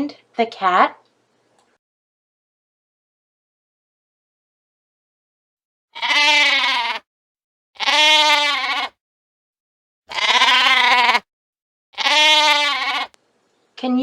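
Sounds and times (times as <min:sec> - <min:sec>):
sheep bleating: 0:05.9 - 0:07.0, 0:07.8 - 0:09.0, 0:10.1 - 0:11.2, 0:12.0 - 0:13.2.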